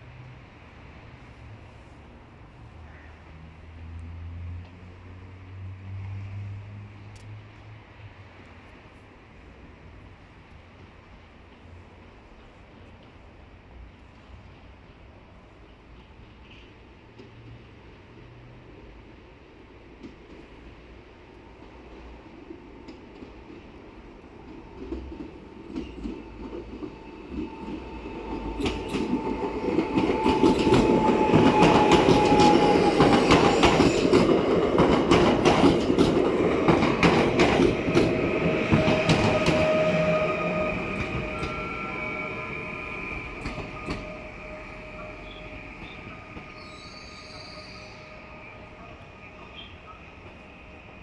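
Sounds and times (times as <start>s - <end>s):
high squealing from train wheels: 15.6s - 17.0s, 25.0s - 34.6s, 35.7s - 51.0s
train wheels clicking over rail joints: 24.4s - 41.7s, 43.2s - 44.3s.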